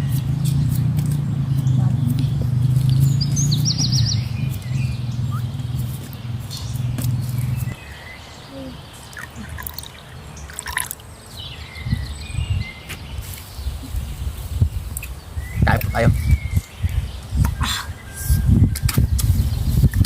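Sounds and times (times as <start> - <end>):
steady low hum: 0.0 - 10.5
birds chirping: 0.0 - 20.0.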